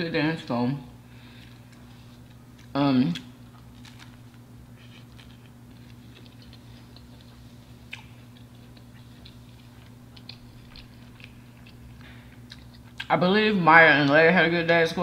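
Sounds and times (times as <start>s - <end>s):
steady low hum: 0.0s - 15.0s
crunchy food chewing: 1.3s - 13.1s.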